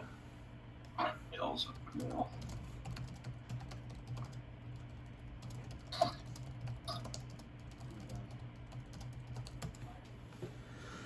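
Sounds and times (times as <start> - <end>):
steady low hum: 0.0 - 11.0
computer keyboard typing: 1.7 - 10.0.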